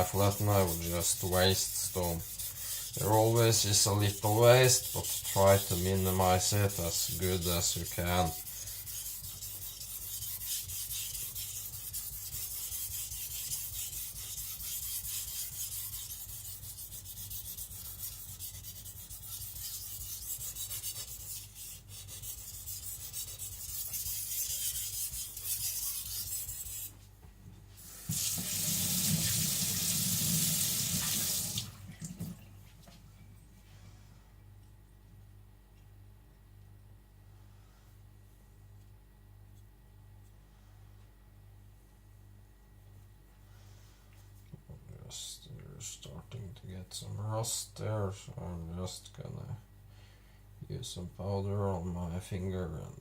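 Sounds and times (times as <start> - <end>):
knife scraping on whetstone: 0.0 - 27.0
running tap water: 28.1 - 32.4.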